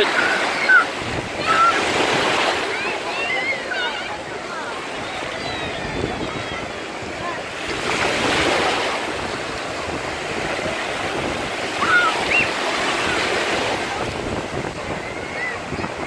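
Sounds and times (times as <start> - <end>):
children's voices: 0.0 - 8.0, 11.6 - 16.0
waves breaking on beach: 0.0 - 16.0.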